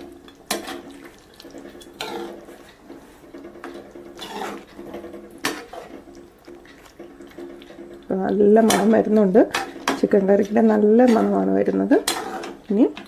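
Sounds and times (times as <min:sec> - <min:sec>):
spoon stirring thick curry: 0:00.0 - 0:13.0.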